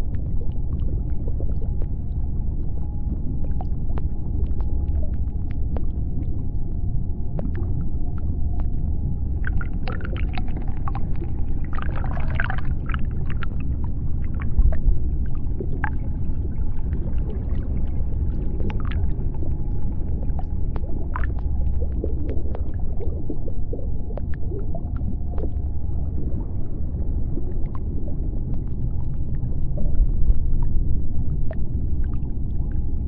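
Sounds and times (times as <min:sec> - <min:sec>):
deep underwater rumble: 0:00.0 - 0:33.0
sharp clicks and crackles: 0:00.1 - 0:13.6.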